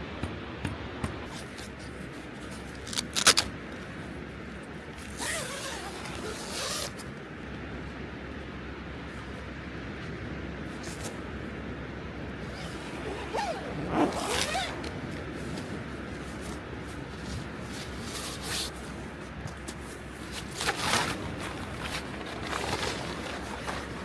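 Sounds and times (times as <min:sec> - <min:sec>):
camping gear rasping: 0:01.2 - 0:03.5, 0:05.0 - 0:07.2, 0:12.4 - 0:24.0.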